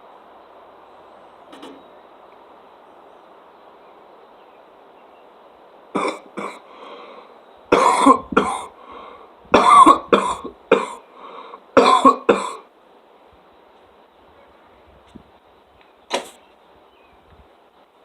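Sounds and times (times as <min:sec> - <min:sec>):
person coughing loudly: 0:06.0 - 0:06.6, 0:07.7 - 0:08.7, 0:09.6 - 0:11.0, 0:11.8 - 0:12.6.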